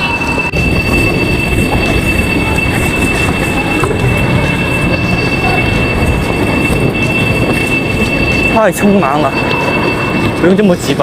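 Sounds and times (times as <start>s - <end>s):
high-pitched whine: 0.0s - 11.0s
rumbling rush: 0.0s - 11.0s.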